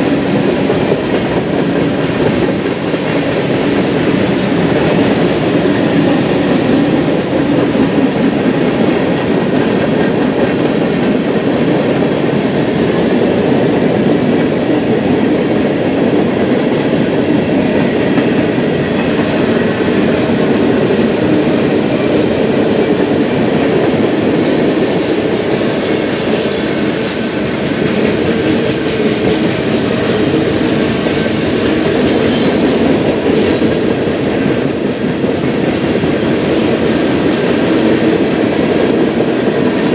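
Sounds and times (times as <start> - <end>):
train wheels rolling on rails: 0.0 - 39.9
high wheel squeals: 28.4 - 28.9.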